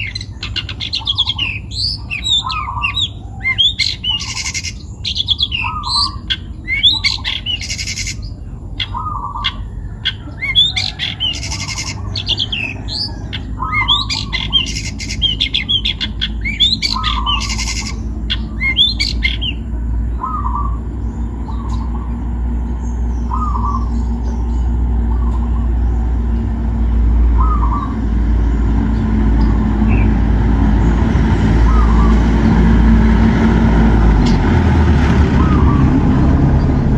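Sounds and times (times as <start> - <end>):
bird harsh squawks and chirps: 0.0 - 22.2, 31.3 - 33.2
low rumble: 0.0 - 36.9.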